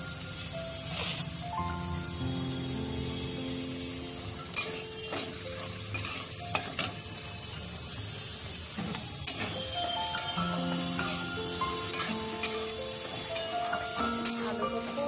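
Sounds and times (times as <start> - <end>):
vegetables sizzling in oil: 0.0 - 15.0
spatula knocking and scraping pan: 11.9 - 12.7.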